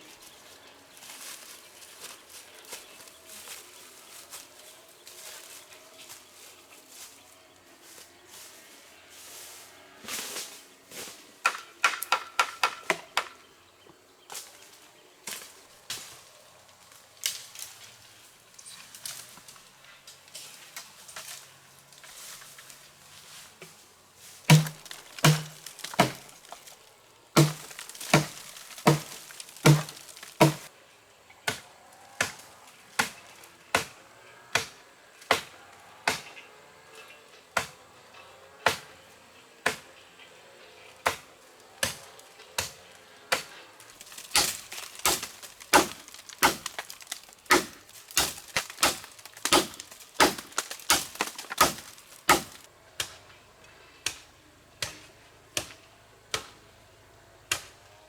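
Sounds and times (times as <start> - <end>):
chopping strikes on wood: 11.4 - 13.3, 24.5 - 26.3, 27.4 - 30.7, 39.6 - 39.8, 41.0 - 42.0, 44.2 - 53.2, 54.8 - 56.5.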